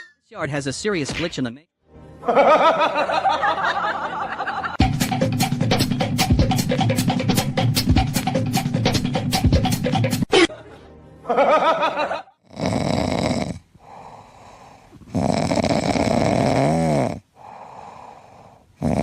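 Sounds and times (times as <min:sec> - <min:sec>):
animal snoring loudly: 0:12.4 - 0:19.0.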